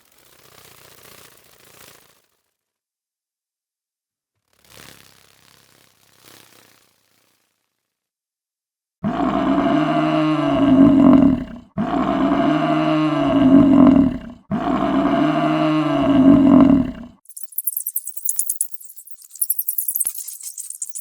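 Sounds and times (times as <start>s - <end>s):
large animal low drawn-out call: 9.0s - 17.2s.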